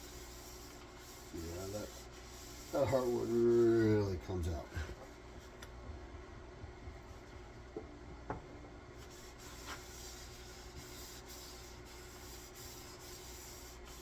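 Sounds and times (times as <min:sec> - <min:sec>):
cloth rag rubbing wood: 0:00.0 - 0:04.1, 0:09.0 - 0:14.0
light knocks on wood: 0:07.8 - 0:08.5.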